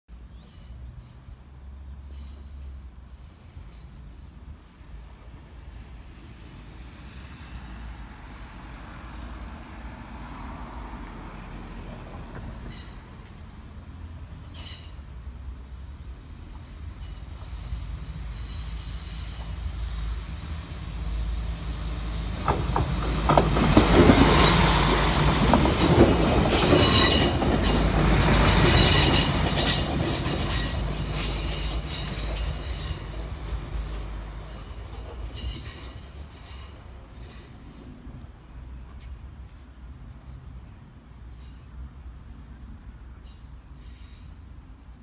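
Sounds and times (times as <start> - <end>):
high-pitched metallic squealing: 14.5 - 15.0, 17.0 - 19.7, 28.5 - 33.2, 34.5 - 37.6.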